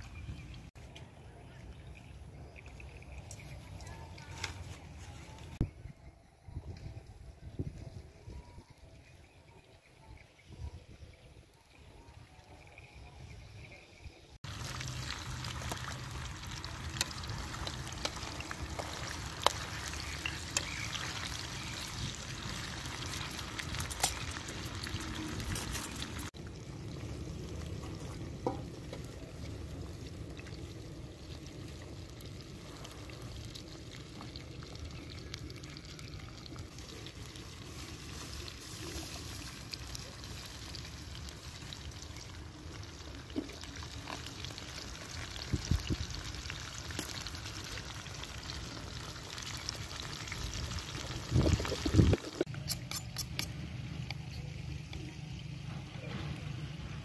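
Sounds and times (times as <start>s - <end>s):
frogs frying in hot oil: 11.0s - 57.0s
oil popping: 14.4s - 55.1s.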